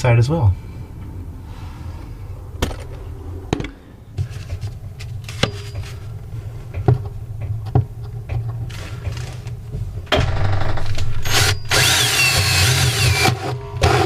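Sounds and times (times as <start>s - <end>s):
steady low hum: 0.0s - 14.0s
tools knocking and clicking: 4.5s - 6.0s.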